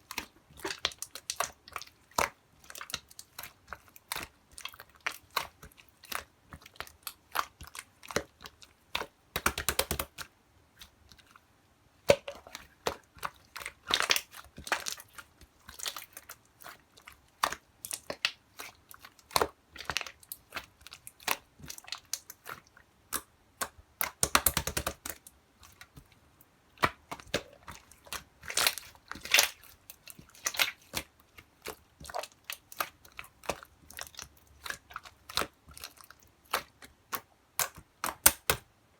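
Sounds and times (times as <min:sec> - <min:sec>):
slime squished by hand: 0:26.8 - 0:38.6.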